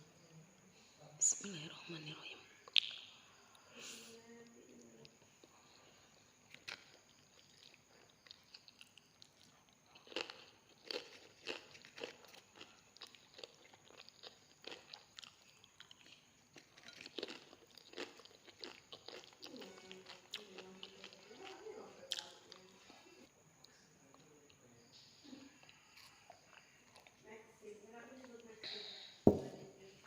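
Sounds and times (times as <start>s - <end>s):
person chewing crunchy food: 5.4s - 21.5s.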